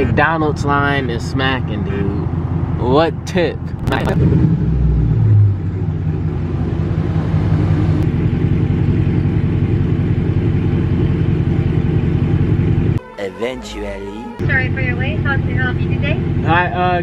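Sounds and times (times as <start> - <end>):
car engine idling: 0.0 - 13.0, 14.4 - 17.0.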